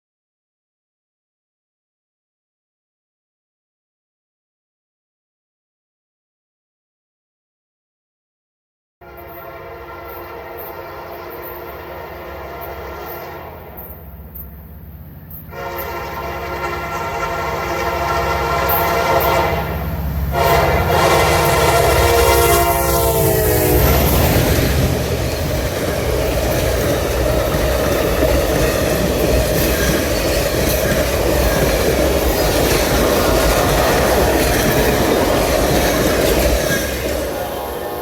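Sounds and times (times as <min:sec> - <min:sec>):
locomotive air horn: 0:09.0 - 0:14.2, 0:15.5 - 0:25.2, 0:31.2 - 0:38.0
train rumble and wheel clatter: 0:09.0 - 0:38.0.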